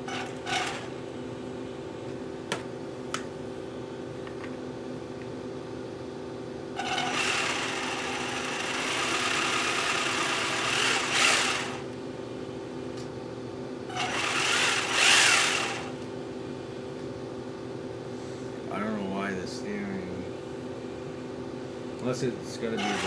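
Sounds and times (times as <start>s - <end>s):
toy car motor whining: 0.1s - 0.9s, 6.8s - 11.9s, 14.0s - 15.9s, 22.8s - 23.0s.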